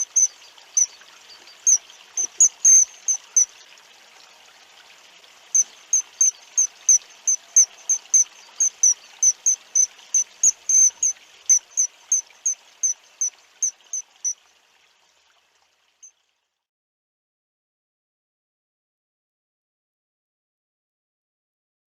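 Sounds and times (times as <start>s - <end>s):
small bird chirping: 0.0s - 3.5s, 5.6s - 14.4s
running river water: 0.0s - 16.7s.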